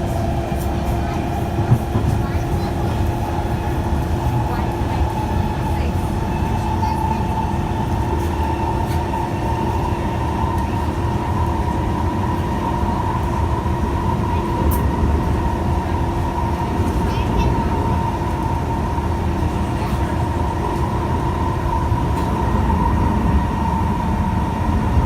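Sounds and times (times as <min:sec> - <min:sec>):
steady train whine: 0:00.0 - 0:25.0
train wheels rumbling on track: 0:00.0 - 0:25.0.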